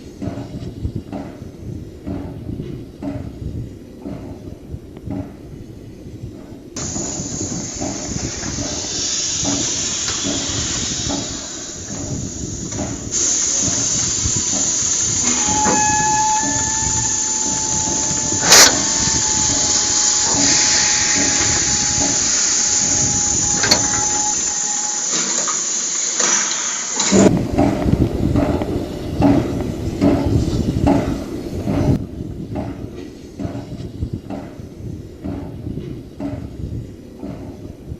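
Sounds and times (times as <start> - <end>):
steam locomotive hissing: 0.0 - 37.9
steam whistle: 13.2 - 27.2.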